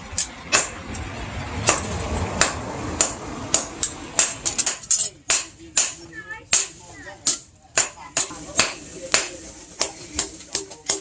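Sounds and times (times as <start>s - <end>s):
low rumble: 0.0s - 4.7s
hammer striking steel on anvil: 0.1s - 1.0s, 1.6s - 11.0s.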